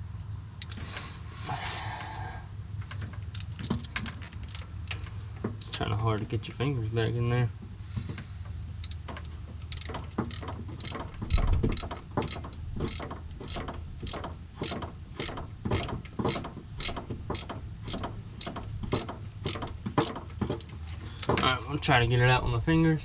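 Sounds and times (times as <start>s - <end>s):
ratchet wrench clicking: 8.8s - 9.1s, 9.7s - 20.7s.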